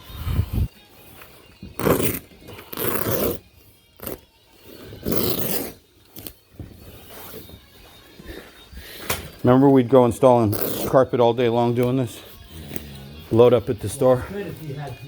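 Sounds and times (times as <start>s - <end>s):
carpet scraping: 1.7s - 8.1s, 10.2s - 11.1s.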